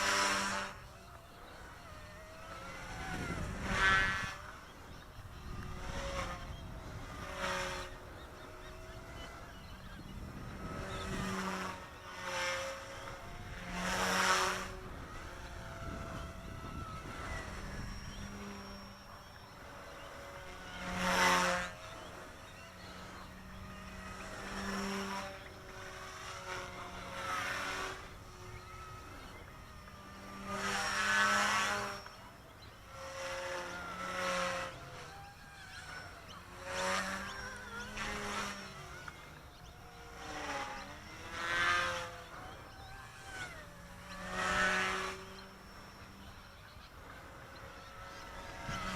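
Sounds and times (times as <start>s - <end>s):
rc helicopter motor whine: 0.0s - 48.9s.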